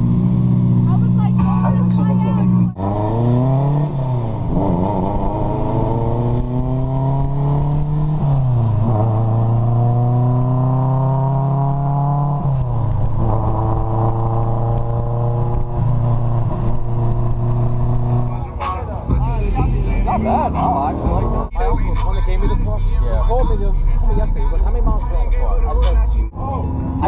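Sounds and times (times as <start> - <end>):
car engine accelerating through gears: 2.6 - 18.7.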